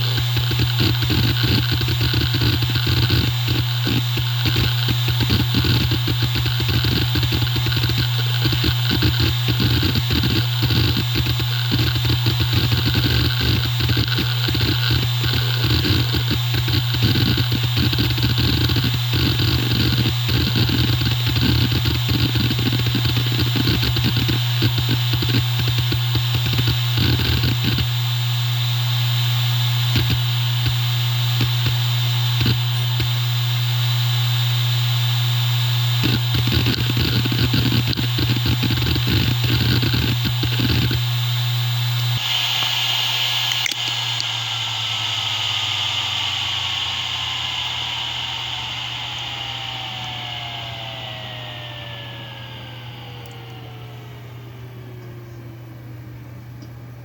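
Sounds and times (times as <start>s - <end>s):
hard drive head clicking: 0.0s - 27.9s, 36.0s - 41.1s, 42.2s - 44.4s
hard drive spindle hum: 0.0s - 57.0s.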